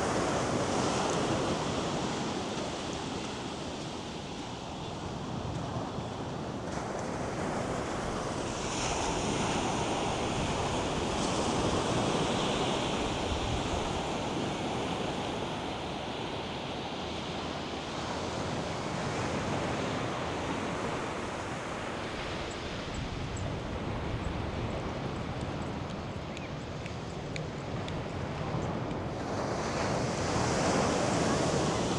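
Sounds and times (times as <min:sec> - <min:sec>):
wind buffeting microphone: 0:00.0 - 0:16.8
surf breaking on a beach: 0:00.0 - 0:31.9.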